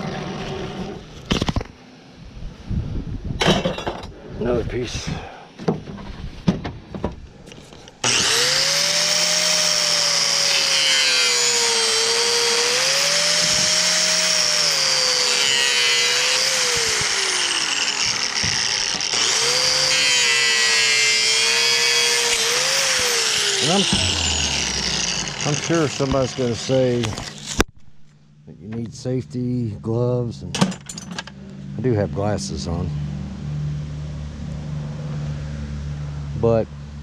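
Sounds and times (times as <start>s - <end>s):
power saw cutting metal: 8.0s - 27.7s.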